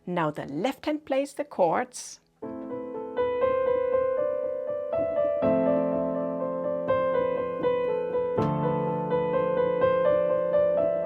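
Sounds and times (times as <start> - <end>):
piano finger exercise: 2.4 - 11.0.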